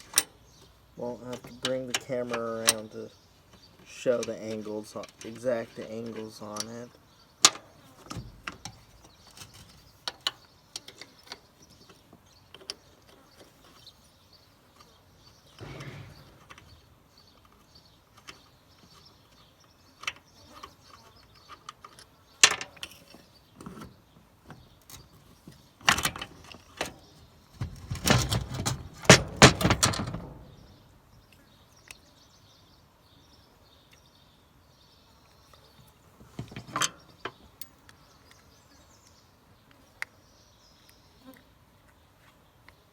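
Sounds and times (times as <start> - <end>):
metal rattles: 15.5 - 18.4, 25.8 - 31.0.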